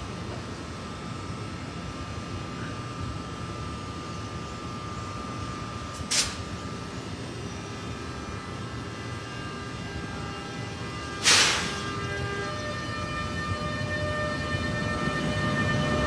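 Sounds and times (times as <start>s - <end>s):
electric locomotive running hum: 0.0s - 16.0s
loud bursts of hiss: 6.0s - 6.5s, 11.2s - 12.0s.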